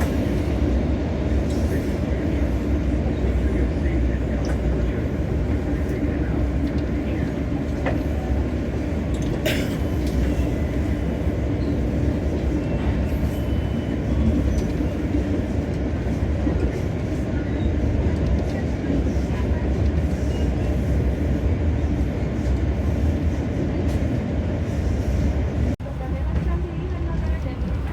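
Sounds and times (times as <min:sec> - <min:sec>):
train interior rumble: 0:00.0 - 0:27.9.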